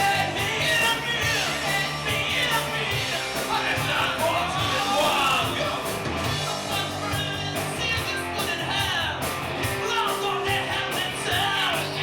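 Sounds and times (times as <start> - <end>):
person singing: 0.0 - 9.0
rock band playing: 0.0 - 12.0.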